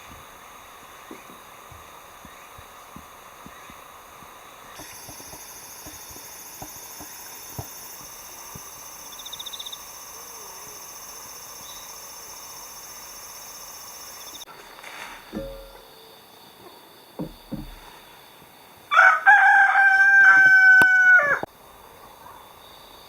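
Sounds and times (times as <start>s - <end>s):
insects trilling: 0.0s - 23.0s
rooster crowing: 18.9s - 21.5s.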